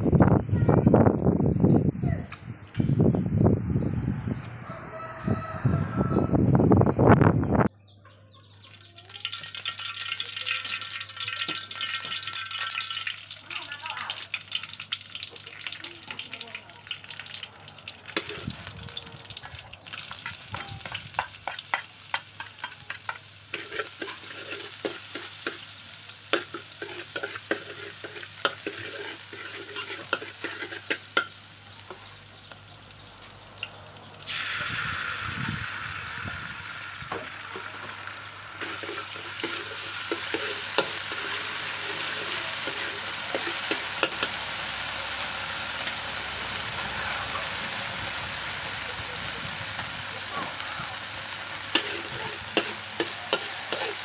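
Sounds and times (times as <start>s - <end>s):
hot oil sizzling in a wok: 8.4s - 54.0s.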